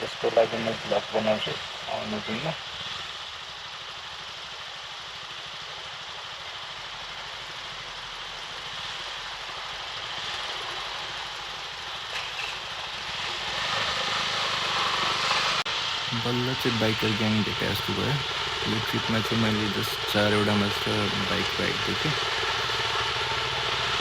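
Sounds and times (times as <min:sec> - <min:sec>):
motorcycle engine: 0:12.1 - 0:24.0.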